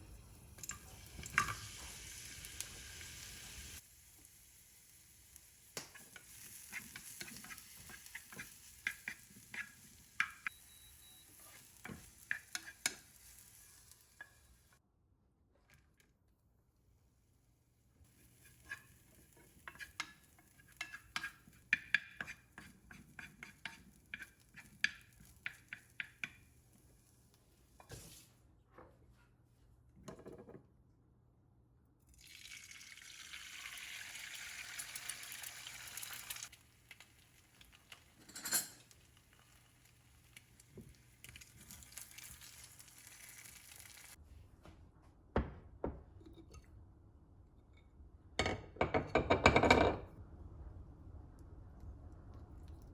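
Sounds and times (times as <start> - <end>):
utensil clicks and taps on a dish: 20.8 - 22.4, 23.4 - 26.4.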